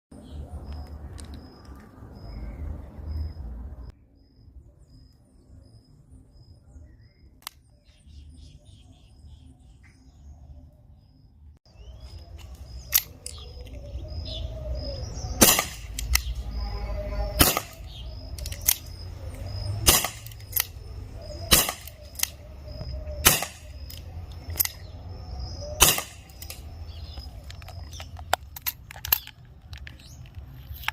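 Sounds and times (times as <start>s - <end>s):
air revolver shots: 15.4s - 16.3s, 17.4s - 17.9s, 19.8s - 20.8s, 21.5s - 22.4s, 23.2s - 23.9s, 25.8s - 26.6s.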